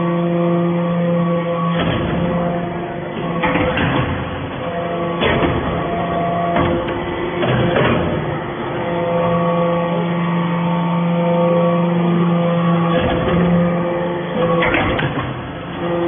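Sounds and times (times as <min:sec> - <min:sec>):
baler machine hum: 0:00.0 - 0:16.0
machine clanks: 0:01.2 - 0:09.8, 0:12.4 - 0:16.0.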